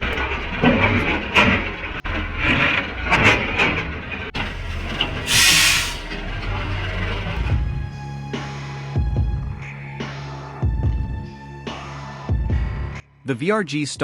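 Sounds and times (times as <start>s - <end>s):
diesel engine running: 0.0s - 8.1s
short loud hiss: 5.2s - 6.2s.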